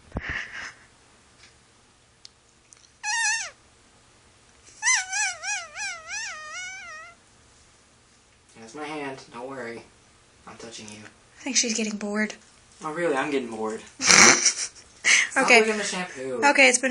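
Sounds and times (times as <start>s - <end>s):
dog whining: 3.0s - 3.6s, 4.7s - 7.2s.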